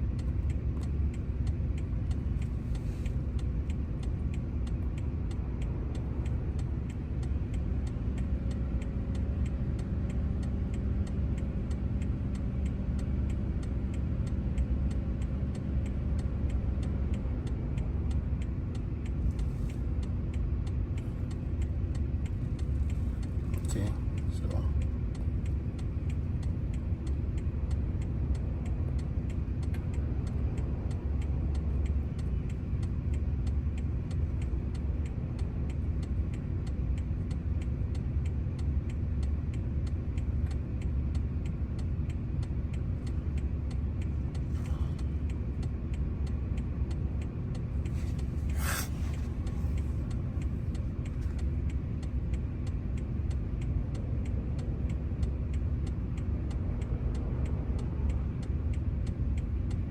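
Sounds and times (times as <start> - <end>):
low mechanical rumble: 0.0 - 59.9.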